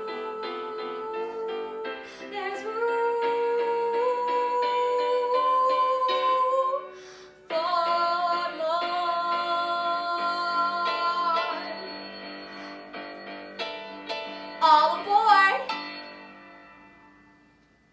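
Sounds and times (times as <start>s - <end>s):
girl singing: 0.0s - 6.9s, 7.5s - 11.9s, 14.6s - 15.7s.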